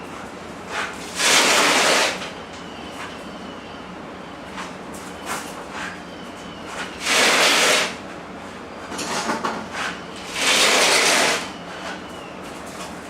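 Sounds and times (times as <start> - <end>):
heavy load scraping across floor: 9.7 - 11.4.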